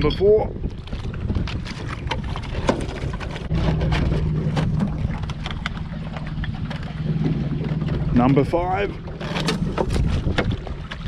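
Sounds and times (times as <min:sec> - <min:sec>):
boat motor running: 0:01.0 - 0:11.0.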